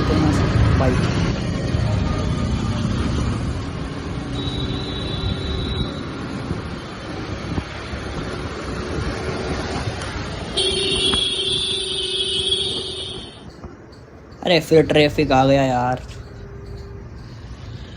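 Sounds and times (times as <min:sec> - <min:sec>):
wind rushing over microphone: 0:05.3 - 0:12.0.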